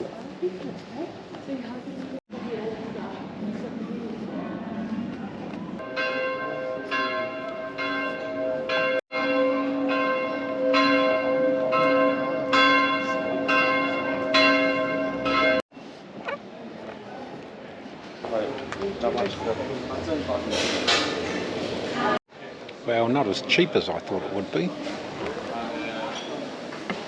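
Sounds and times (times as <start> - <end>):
church bells ringing: 5.8 - 15.6.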